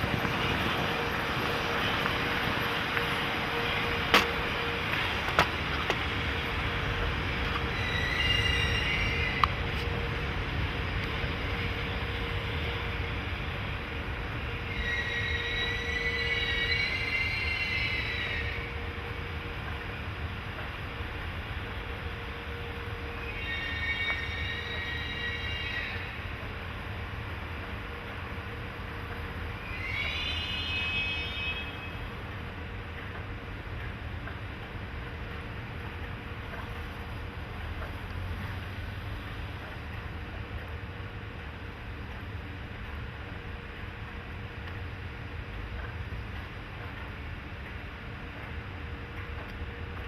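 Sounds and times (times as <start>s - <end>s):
freight train rumbling: 0.0s - 50.0s
locomotive high whine: 0.0s - 50.0s
train wheel squeal: 7.5s - 10.1s, 14.5s - 19.3s, 22.6s - 26.4s, 29.6s - 32.1s.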